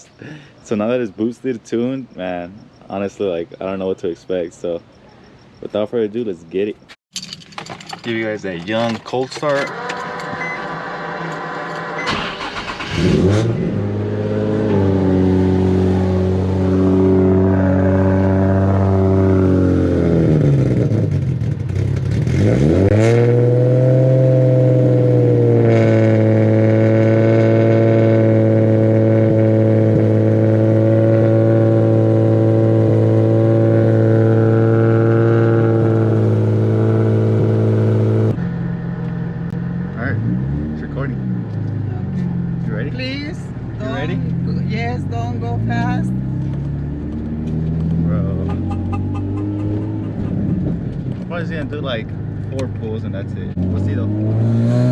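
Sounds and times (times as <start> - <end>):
engine starter cranking: 7.2 - 13.4
car engine revving and idling: 8.9 - 54.9.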